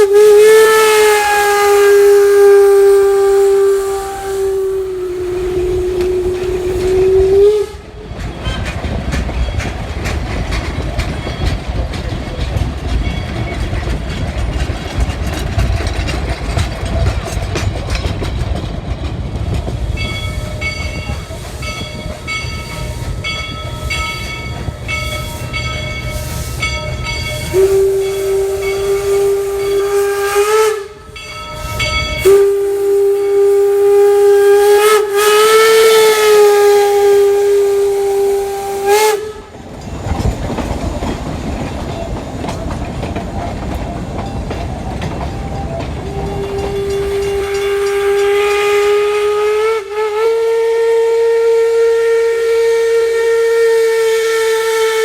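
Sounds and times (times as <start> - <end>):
steam whistle blasts: 0.0 - 8.7, 20.3 - 39.5, 45.3 - 55.0
steam locomotive rumble and hiss: 0.0 - 55.0.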